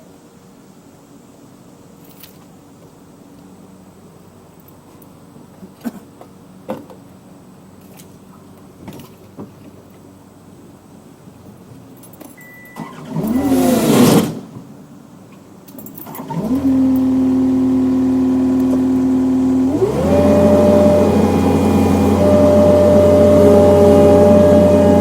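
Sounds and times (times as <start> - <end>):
diesel engine starting and idling: 12.7 - 14.5, 16.0 - 25.0.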